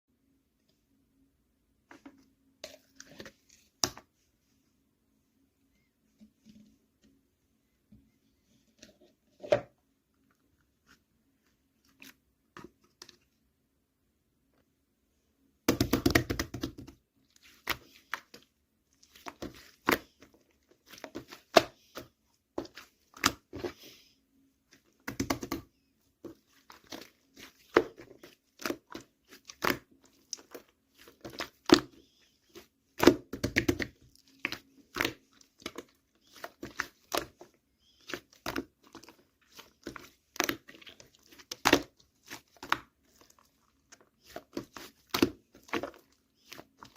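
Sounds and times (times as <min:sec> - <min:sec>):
slime squishing: 0:15.8 - 0:46.9.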